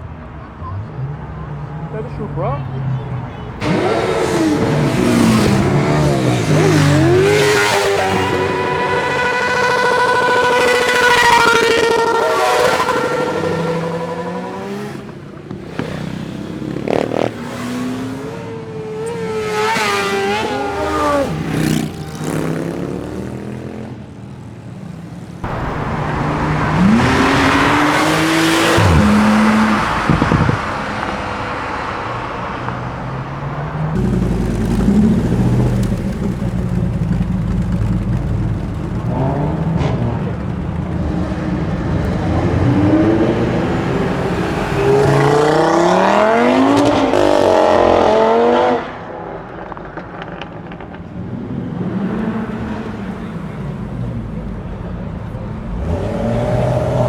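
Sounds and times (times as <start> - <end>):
cars accelerating hard: 0.0 - 24.1, 24.8 - 57.0
deep loud car engine: 0.0 - 24.1, 25.4 - 57.0.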